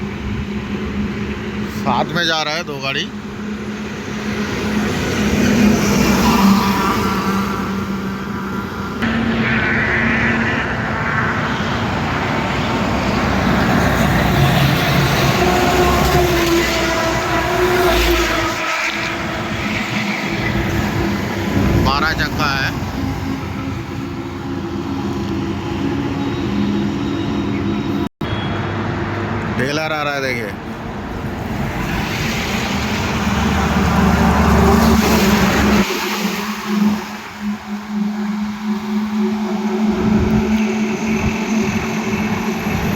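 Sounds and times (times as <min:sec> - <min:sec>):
highway traffic roar: 0:00.0 - 0:42.9
vehicles passing close by: 0:00.0 - 0:42.9
steady engine hum: 0:30.5 - 0:42.9
vehicle passing close by: 0:31.3 - 0:42.3.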